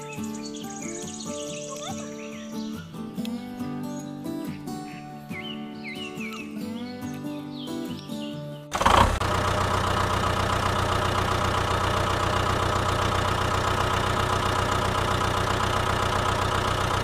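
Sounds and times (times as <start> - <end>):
engine starting and idling: 8.7 - 17.0.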